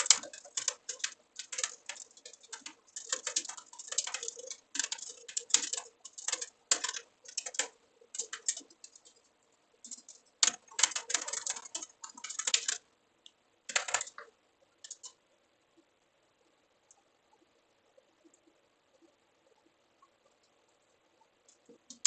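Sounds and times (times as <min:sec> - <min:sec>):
computer keyboard typing: 0:00.0 - 0:09.2, 0:09.9 - 0:12.8, 0:13.7 - 0:14.3, 0:14.9 - 0:15.2.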